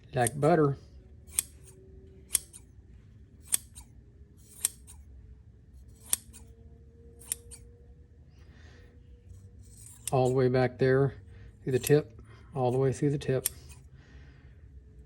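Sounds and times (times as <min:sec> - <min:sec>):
scissors snipping: 0:00.2 - 0:00.5, 0:01.3 - 0:02.7, 0:03.4 - 0:05.0, 0:05.9 - 0:06.5, 0:07.2 - 0:07.6, 0:09.6 - 0:10.4, 0:11.7 - 0:12.0, 0:13.4 - 0:13.8.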